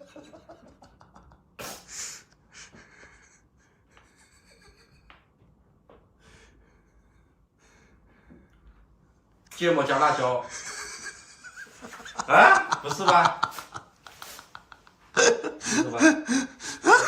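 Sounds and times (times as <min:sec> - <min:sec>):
person sniffing: 0:01.6 - 0:02.3, 0:14.1 - 0:14.7
person breathing hard: 0:01.6 - 0:04.2, 0:06.2 - 0:08.9, 0:15.2 - 0:17.0.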